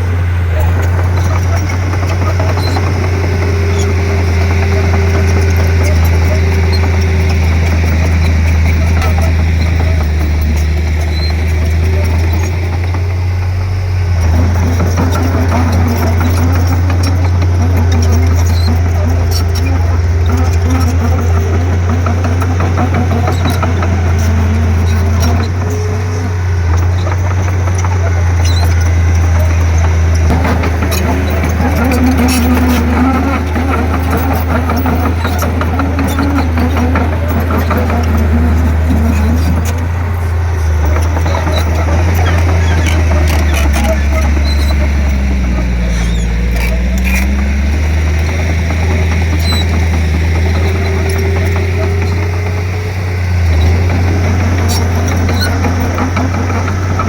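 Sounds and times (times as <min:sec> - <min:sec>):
bulldozer diesel engine humming: 0:00.0 - 0:57.0
light clicks and clanks: 0:14.2 - 0:57.0.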